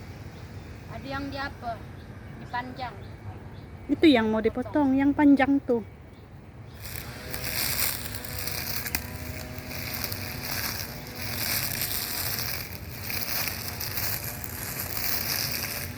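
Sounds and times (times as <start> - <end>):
brush cutter cutting grass: 6.7 - 15.9.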